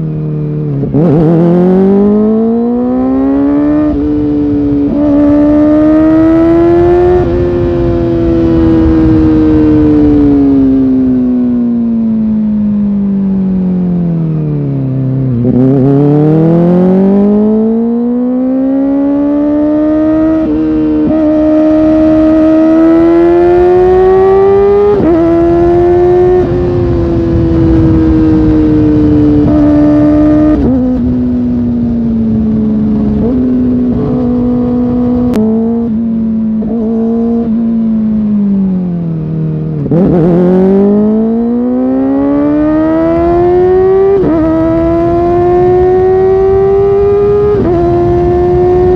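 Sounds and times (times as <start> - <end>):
motorcycle engine revving: 0.0 - 48.9
wind rush: 3.3 - 11.6, 19.6 - 38.7, 39.8 - 48.9.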